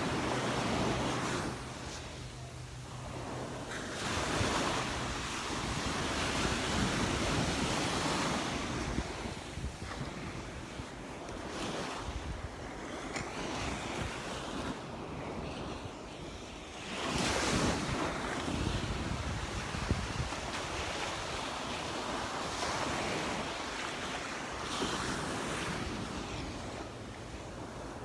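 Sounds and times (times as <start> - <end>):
surf washing onto beach: 0.0 - 15.4
wind on microphone: 0.0 - 28.0.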